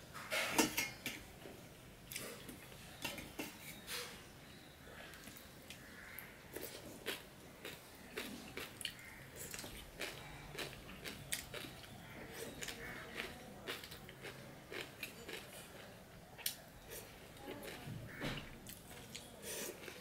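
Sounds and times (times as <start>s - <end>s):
chewing with mouth clicks: 6.6s - 17.9s.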